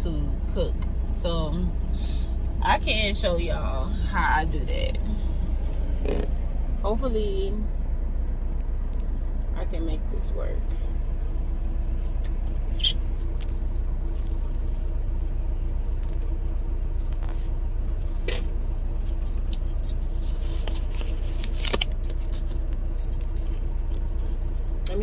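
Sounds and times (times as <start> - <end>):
truck engine idling: 0.0 - 25.0
sharp clicks and rustles: 17.0 - 25.0.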